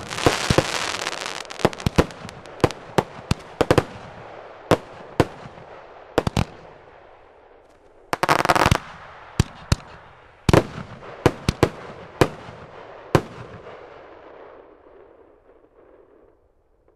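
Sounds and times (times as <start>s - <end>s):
fireworks cracking and banging: 0.0s - 6.9s, 8.1s - 14.0s.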